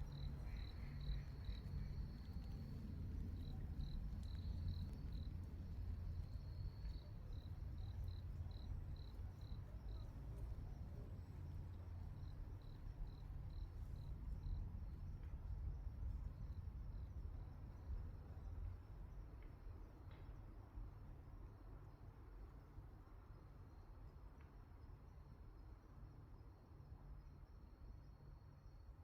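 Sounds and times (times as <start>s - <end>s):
steady low rumble: 0.0s - 18.8s.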